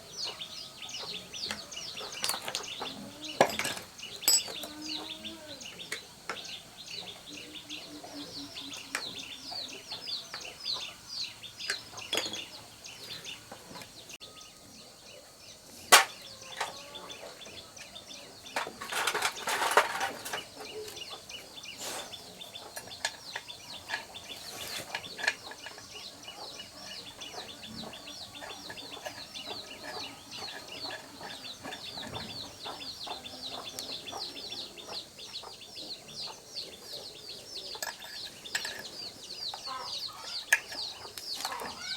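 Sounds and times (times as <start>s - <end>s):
birds chirping: 0.0s - 41.9s
clattering noise: 1.4s - 5.0s, 18.5s - 21.1s.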